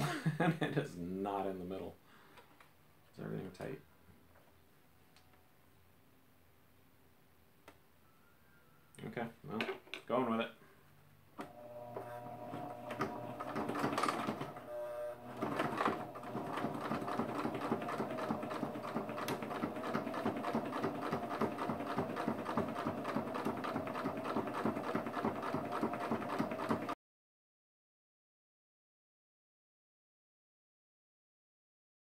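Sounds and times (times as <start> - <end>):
electric sewing machine stitching: 11.4 - 27.0.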